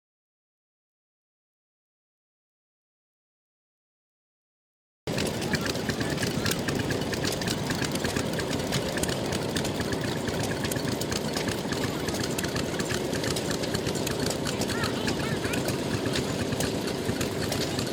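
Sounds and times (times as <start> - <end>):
stationary engines idling: 5.1 - 17.9.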